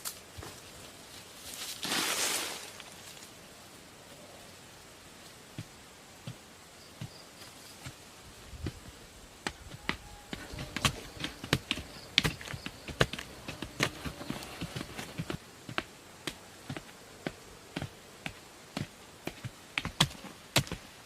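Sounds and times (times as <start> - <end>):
irregular knocks and taps: 9.4 - 20.9.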